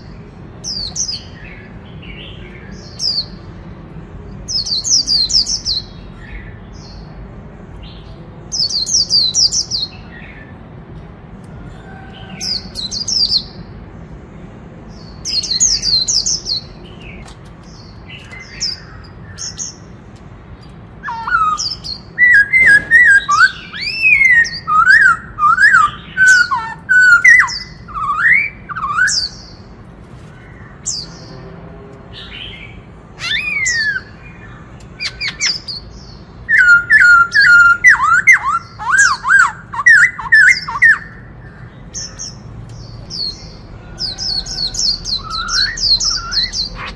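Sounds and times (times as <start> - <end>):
bird whistled song phrases: 21.0 - 29.6, 33.2 - 34.4, 35.0 - 41.3, 44.3 - 46.9.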